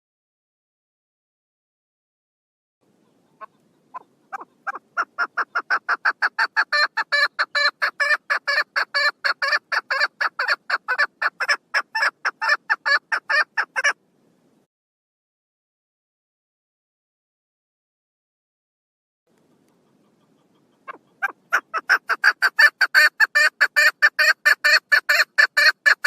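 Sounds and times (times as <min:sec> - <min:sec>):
partridge calling: 0:03.0 - 0:14.0, 0:19.4 - 0:26.0.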